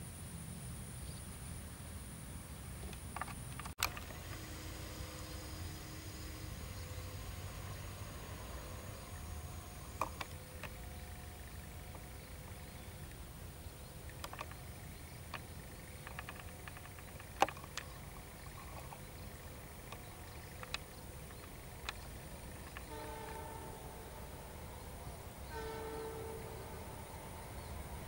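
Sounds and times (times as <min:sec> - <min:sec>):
distant diesel locomotive rumble: 0:00.0 - 0:28.0
sharp clicks and ticks: 0:02.9 - 0:13.2, 0:13.8 - 0:24.9.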